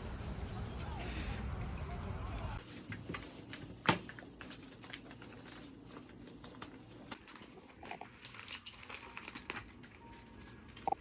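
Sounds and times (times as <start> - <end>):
rustling and crinkling: 2.6 - 11.0.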